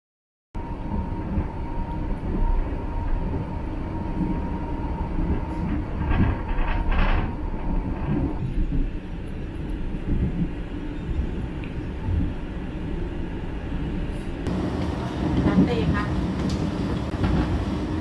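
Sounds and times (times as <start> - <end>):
train wheels rumbling on rails: 0.6 - 18.0
rattling noises: 4.1 - 11.4.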